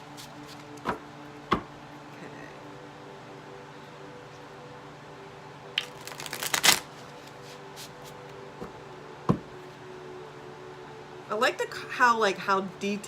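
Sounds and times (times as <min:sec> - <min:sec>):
faint steady hum: 0:00.0 - 0:13.0
cards being shuffled: 0:05.8 - 0:08.2.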